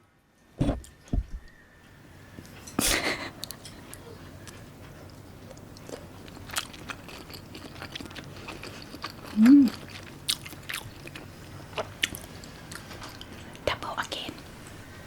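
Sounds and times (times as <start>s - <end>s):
person chewing food: 3.4s - 13.6s.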